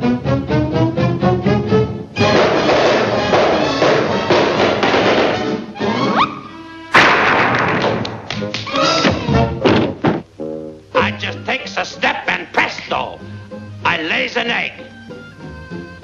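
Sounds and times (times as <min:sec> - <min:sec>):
orchestral cartoon music: 0:00.0 - 0:06.9, 0:08.4 - 0:09.6, 0:11.0 - 0:16.0
loud orchestral hit: 0:02.2 - 0:05.6.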